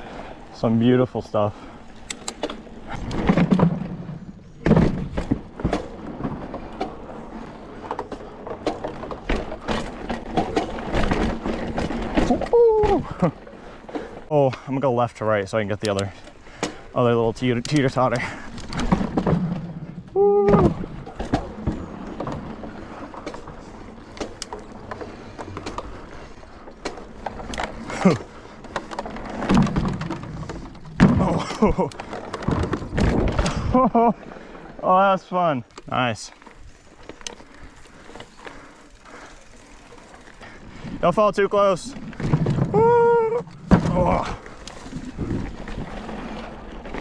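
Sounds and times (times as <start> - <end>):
bike tyres thudding on boards: 2.4 - 14.2, 17.9 - 33.8, 41.9 - 47.0.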